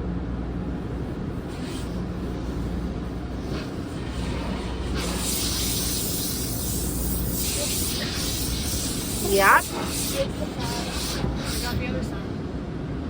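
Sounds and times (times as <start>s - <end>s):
car wash low rumble: 0.0s - 13.0s
water spray jets hissing: 0.6s - 12.4s.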